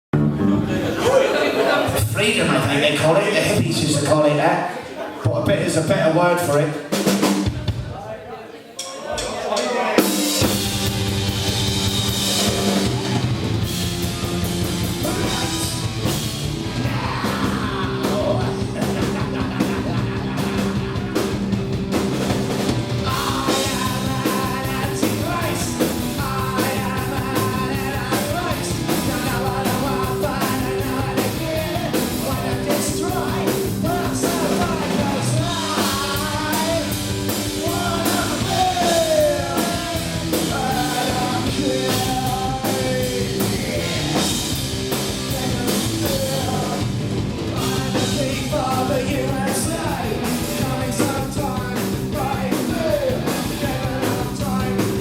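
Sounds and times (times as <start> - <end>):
punk rock band playing: 0.1 - 4.4, 5.2 - 8.0, 8.8 - 55.0
person singing: 14.9 - 21.5, 23.0 - 55.0.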